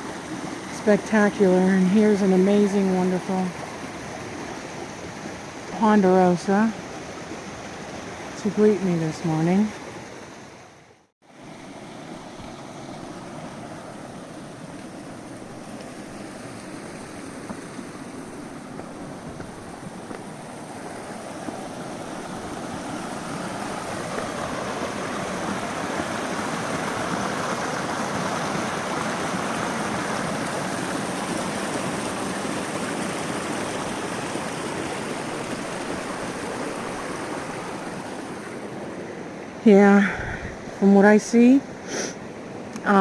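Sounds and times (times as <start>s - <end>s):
stream rushing and splashing: 0.0s - 43.0s.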